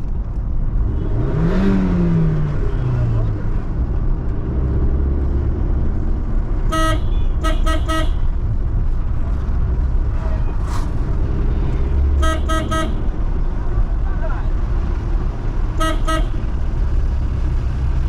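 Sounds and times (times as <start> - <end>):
vehicle engine and road noise: 0.0 - 18.0
vehicle horn tooting: 6.7 - 8.4, 12.2 - 13.1, 15.8 - 16.5.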